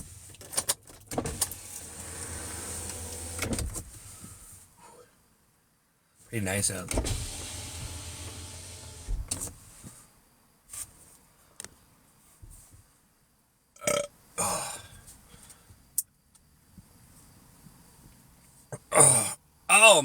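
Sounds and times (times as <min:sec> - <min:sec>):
man burping: 0:13.8 - 0:14.9, 0:18.8 - 0:19.4.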